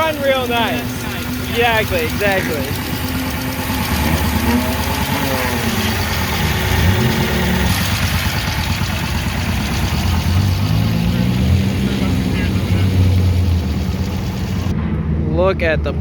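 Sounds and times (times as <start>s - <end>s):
faint voices: 0.0s - 7.3s, 11.6s - 14.7s
small engine idling: 0.0s - 14.7s.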